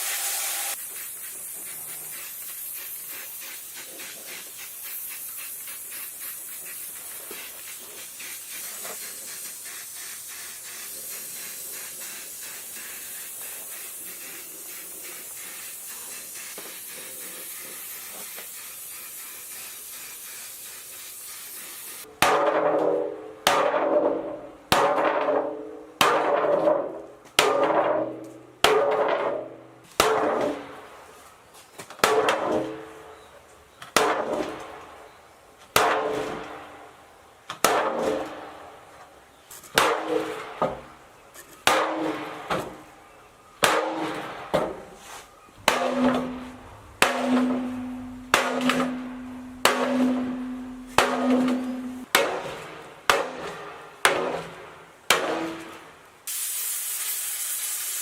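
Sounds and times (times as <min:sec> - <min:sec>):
steady hiss: 0:00.0 - 0:22.1, 0:56.0 - 0:58.0.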